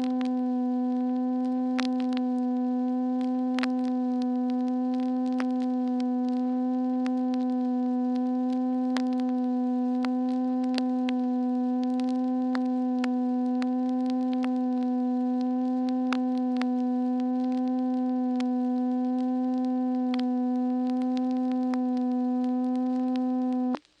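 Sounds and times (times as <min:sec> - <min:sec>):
sharp clicks and pops: 0:00.0 - 0:24.0
steady buzzy tone: 0:00.0 - 0:24.0.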